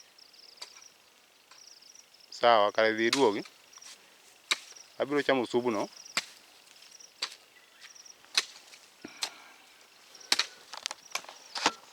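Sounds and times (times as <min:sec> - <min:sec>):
footsteps crunching on dry ground: 0:03.0 - 0:09.2.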